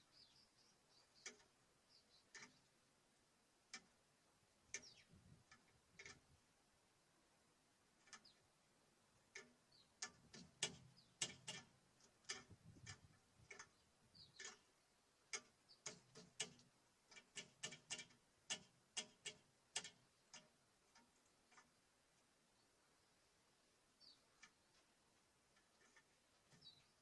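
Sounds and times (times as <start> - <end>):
birds pecking at seed: 2.2 - 2.7, 4.7 - 6.3, 9.2 - 22.3.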